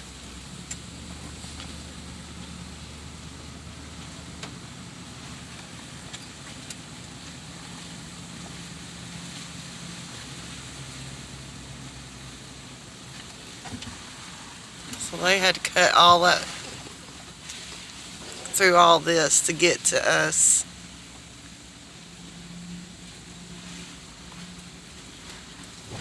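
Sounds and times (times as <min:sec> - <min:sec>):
vehicle engine running: 0:25.7 - 0:26.0.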